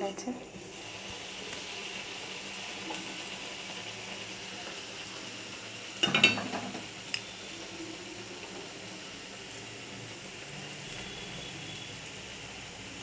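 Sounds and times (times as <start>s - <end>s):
oil frying hiss: 0.0s - 13.0s
metal utensil clattering on pan: 6.0s - 6.9s.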